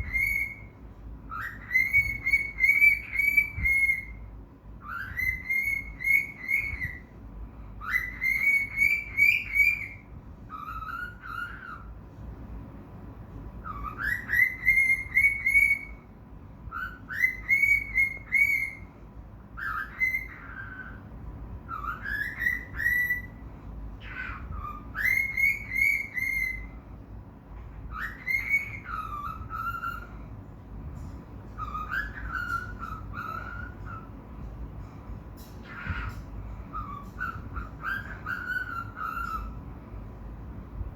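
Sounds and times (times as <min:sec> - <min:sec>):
cockatiel whistling: 0:00.0 - 0:07.1, 0:07.8 - 0:11.9, 0:13.6 - 0:16.1, 0:16.7 - 0:18.9, 0:19.6 - 0:21.0, 0:21.7 - 0:23.4, 0:24.0 - 0:26.8, 0:27.9 - 0:30.2, 0:31.5 - 0:34.2, 0:35.6 - 0:39.6.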